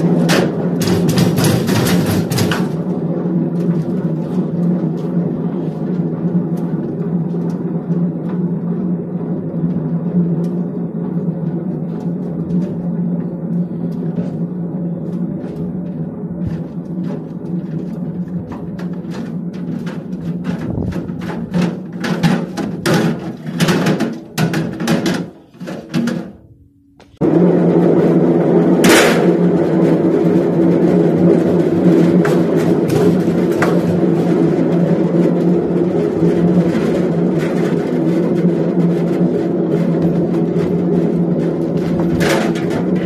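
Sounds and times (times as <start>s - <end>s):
objects knocking in washing machine drum: 0.0s - 2.8s, 15.4s - 26.4s
washing machine humming: 0.0s - 43.0s.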